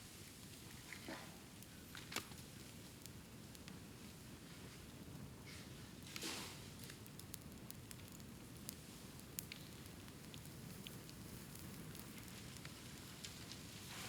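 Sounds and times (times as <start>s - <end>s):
bonfire snaps and pops: 1.6s - 4.2s, 6.0s - 14.0s.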